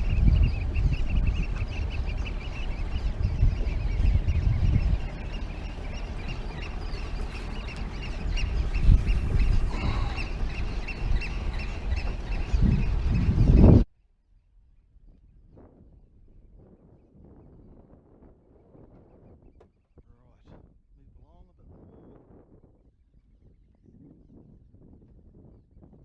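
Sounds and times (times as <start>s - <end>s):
steady low rumble: 0.0s - 13.9s
birds chirping: 0.0s - 15.4s.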